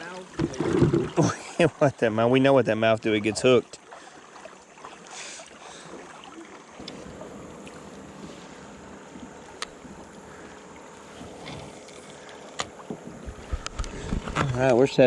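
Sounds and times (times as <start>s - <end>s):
water around a kayak: 0.0s - 15.0s
wind on microphone: 12.8s - 14.6s.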